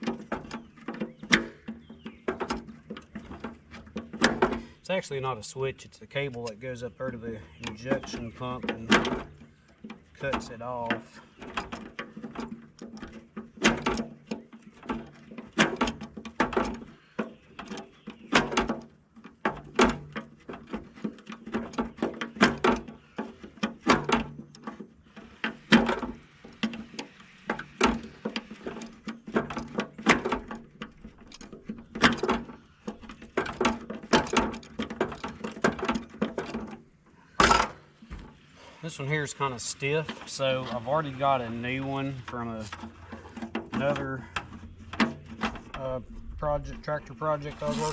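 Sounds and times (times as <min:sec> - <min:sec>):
tools and metal parts clicking: 0:06.2 - 0:38.4.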